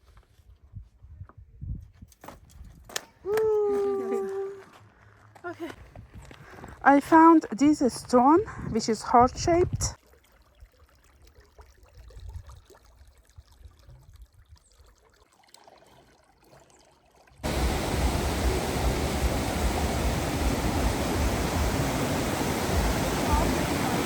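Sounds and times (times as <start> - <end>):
faint low rumbling: 17.4 - 24.0
waterfall rushing: 17.4 - 24.0.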